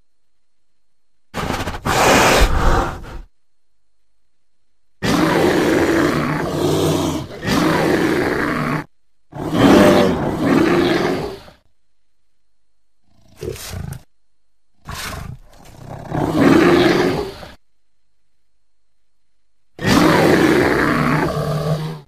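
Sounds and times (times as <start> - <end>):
bear roaring and growling: 1.4 - 3.3, 5.0 - 11.6, 13.0 - 14.1, 14.8 - 17.6, 19.8 - 22.0.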